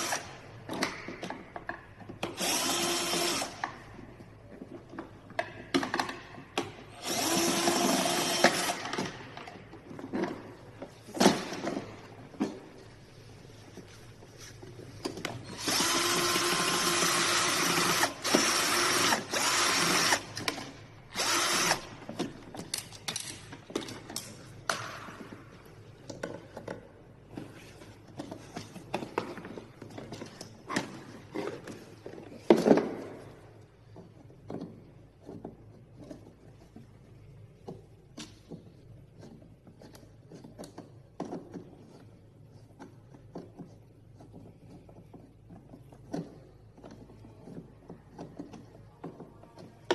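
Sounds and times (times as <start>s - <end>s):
clicks and rattles of parts: 0.2s - 2.4s, 3.1s - 13.0s, 17.6s - 49.9s.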